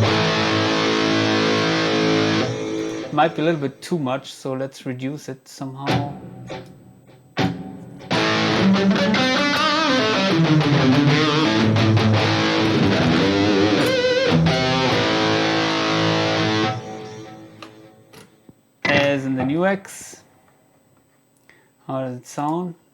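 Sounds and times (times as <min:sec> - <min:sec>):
distorted electric guitar with delay: 0:00.0 - 0:03.6, 0:07.4 - 0:18.2.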